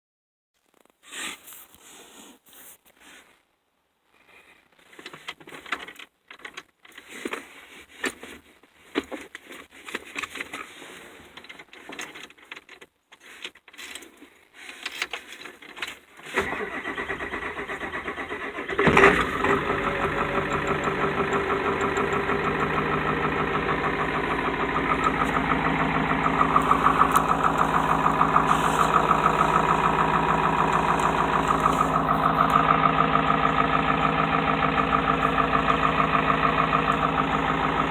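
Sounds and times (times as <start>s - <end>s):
diesel engine idling: 16.4s - 37.9s
starter cranking: 16.4s - 37.9s.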